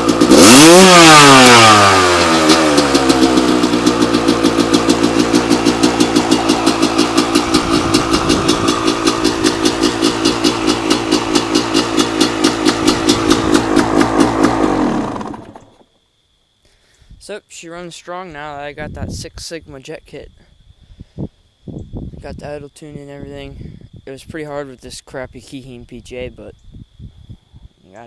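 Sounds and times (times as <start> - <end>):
dirt bike engine idling: 0.0 - 16.0.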